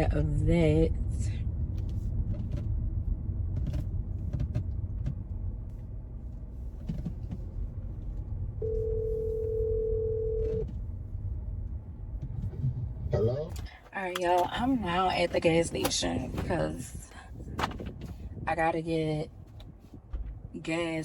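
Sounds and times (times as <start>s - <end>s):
low rumble: 0.0s - 13.8s
telephone ringback tone: 8.6s - 10.6s.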